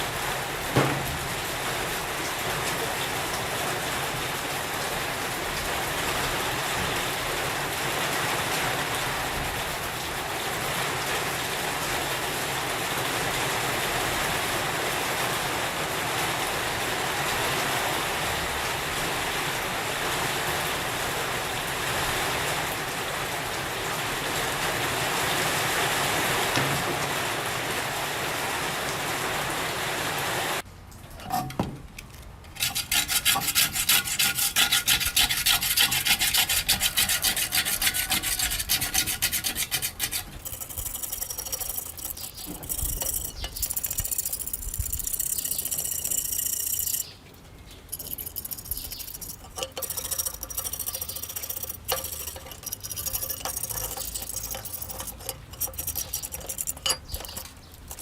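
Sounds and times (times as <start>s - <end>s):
hand sanding rust: 32.5s - 47.1s, 47.9s - 58.0s.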